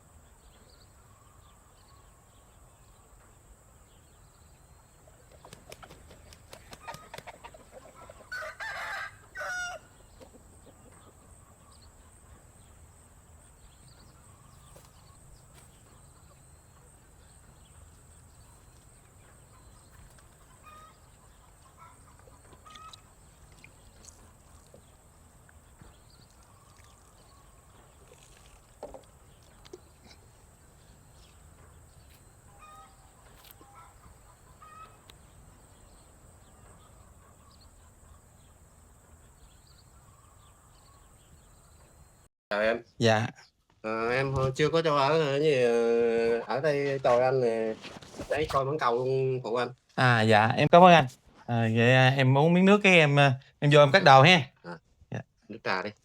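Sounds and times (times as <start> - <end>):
chickens clucking and chirping: 0.6 - 8.5, 9.4 - 42.1
rooster crowing: 8.0 - 10.0.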